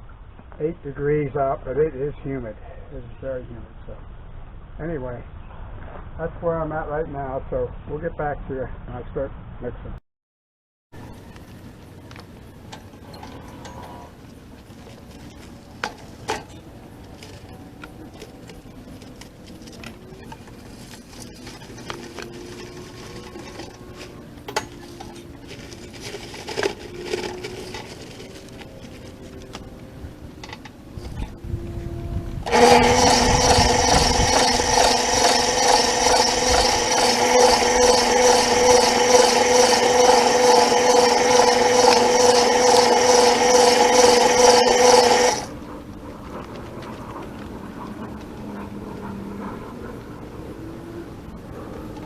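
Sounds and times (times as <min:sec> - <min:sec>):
electric mixer motor whining: 0:21.3 - 0:25.2, 0:31.8 - 0:45.5.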